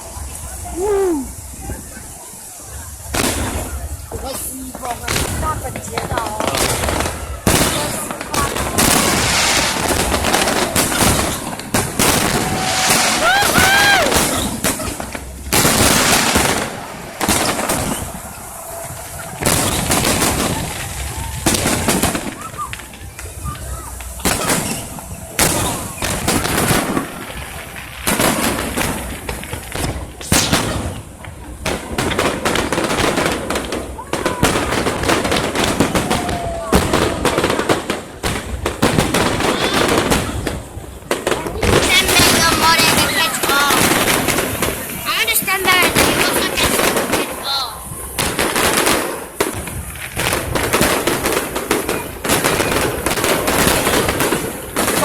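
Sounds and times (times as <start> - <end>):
fireworks bangs and cracks: 0.0 - 55.0
fireworks crackling: 0.0 - 55.0.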